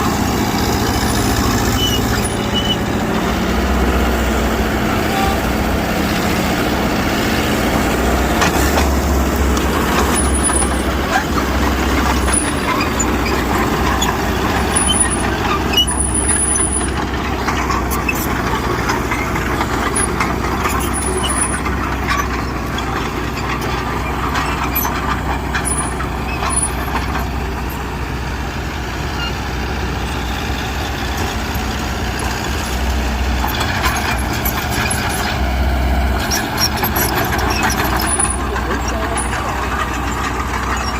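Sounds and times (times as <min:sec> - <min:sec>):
diesel machinery engine drone: 0:00.0 - 0:40.9
high squeaks: 0:00.1 - 0:03.2, 0:08.5 - 0:27.9, 0:29.1 - 0:35.4, 0:36.1 - 0:40.9
metallic clatter: 0:08.4 - 0:27.8, 0:36.2 - 0:40.9.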